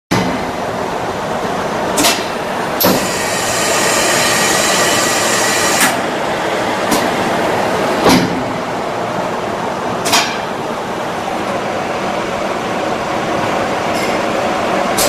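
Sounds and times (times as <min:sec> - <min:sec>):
brazing torch hissing: 0:02.8 - 0:06.0.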